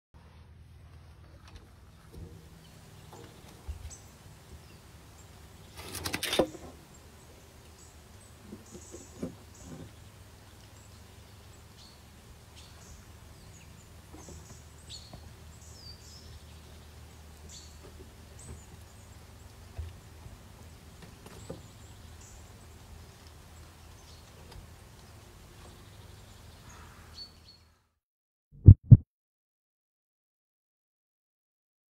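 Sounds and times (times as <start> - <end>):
small birds chirping: 1.8 - 27.8
faint low rumble: 28.6 - 29.0.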